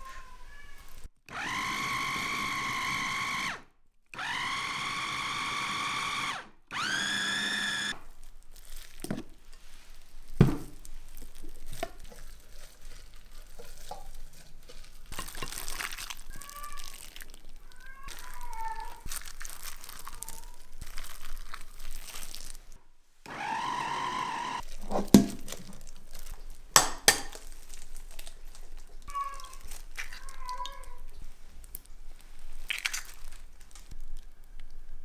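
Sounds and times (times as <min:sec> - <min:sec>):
rustling: 0:00.0 - 0:01.1, 0:07.9 - 0:23.4, 0:24.6 - 0:35.0
blender motor grinding food: 0:01.3 - 0:08.2, 0:13.4 - 0:28.0
handling clicks and knocks: 0:24.6 - 0:28.9.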